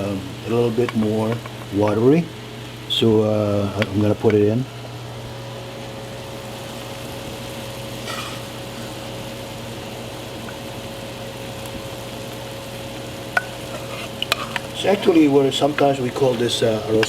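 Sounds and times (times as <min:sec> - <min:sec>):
broth boiling and bubbling: 0:00.0 - 0:17.0.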